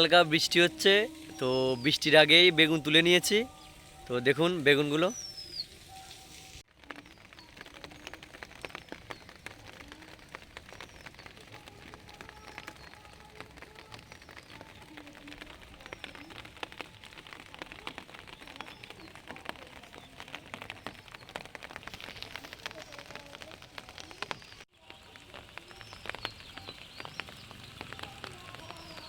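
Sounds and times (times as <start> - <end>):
light rain pattering: 0.0 - 29.0.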